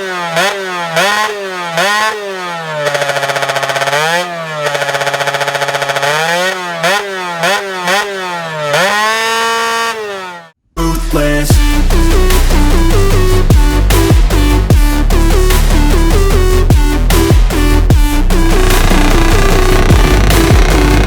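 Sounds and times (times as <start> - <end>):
two-stroke engine revving: 0.0 - 10.6, 11.7 - 21.0.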